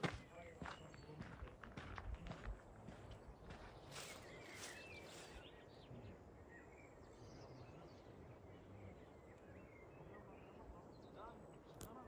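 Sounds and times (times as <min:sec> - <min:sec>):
faint bird chirps: 0:03.5 - 0:12.0.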